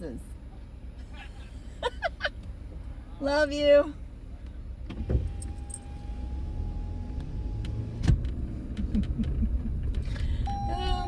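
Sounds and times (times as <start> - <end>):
car interior rumble: 0.9 - 11.0
faint steady tone: 10.4 - 11.0.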